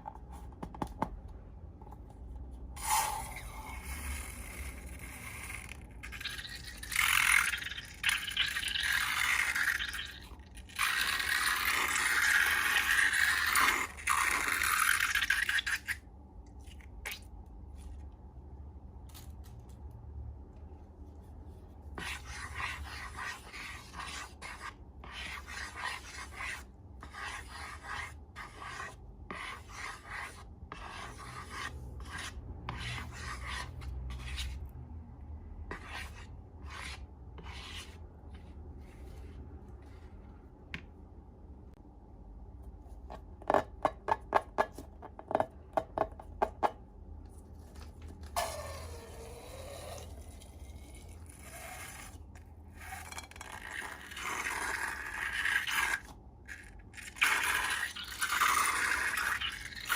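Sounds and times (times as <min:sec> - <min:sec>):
rough scraping and rubbing: 0:21.2 - 0:34.7, 0:35.7 - 0:40.4, 0:47.4 - 0:59.9.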